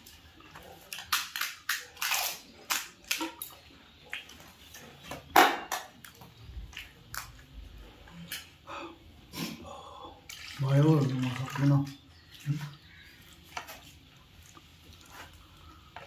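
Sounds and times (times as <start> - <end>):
crisp shells crunching in mouth: 0.9 - 3.5.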